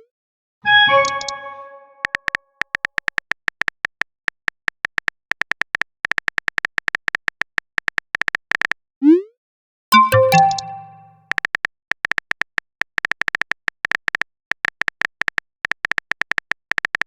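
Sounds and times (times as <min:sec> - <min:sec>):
message alert chime: 0:00.7 - 0:02.0, 0:10.0 - 0:11.2.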